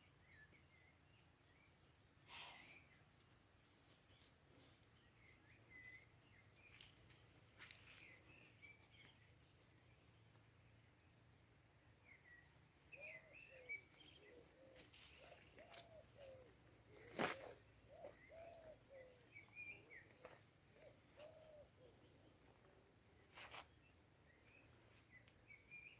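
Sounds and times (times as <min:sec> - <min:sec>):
small birds chirping: 0:00.0 - 0:25.9
dove cooing: 0:13.0 - 0:22.1.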